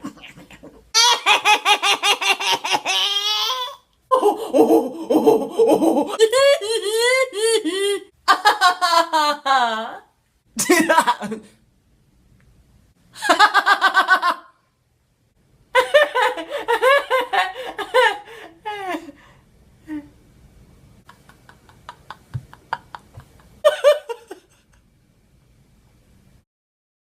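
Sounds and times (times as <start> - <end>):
person laughing: 0.0 - 11.6, 15.8 - 19.2, 21.1 - 24.8.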